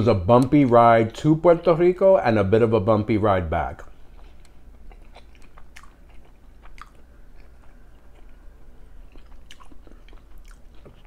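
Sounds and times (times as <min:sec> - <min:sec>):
man chewing food: 0:03.9 - 0:11.0.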